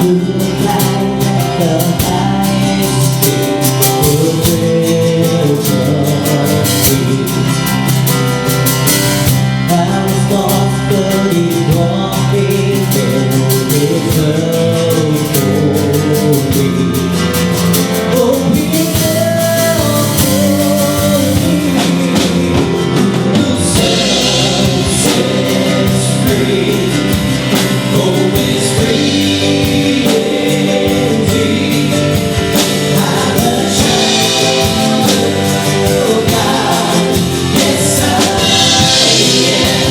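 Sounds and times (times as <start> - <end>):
group singing over a band: 18.2 - 39.9.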